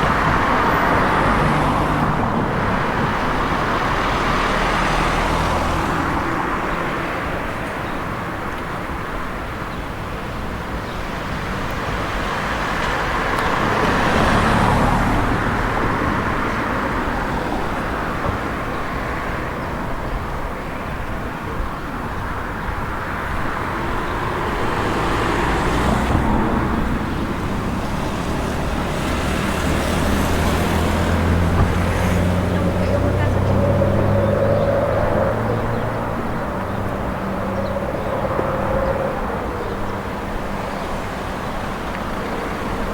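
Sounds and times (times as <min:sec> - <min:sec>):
cars passing: 0:00.0 - 0:42.9.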